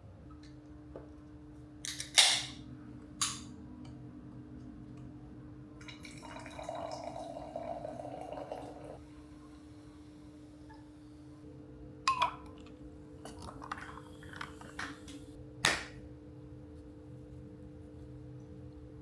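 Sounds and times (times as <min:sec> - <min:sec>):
liquid pouring into a glass: 0:05.8 - 0:09.0.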